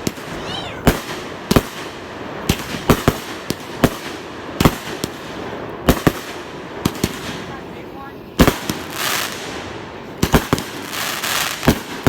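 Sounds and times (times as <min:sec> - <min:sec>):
fireworks bangs: 0:00.0 - 0:04.8.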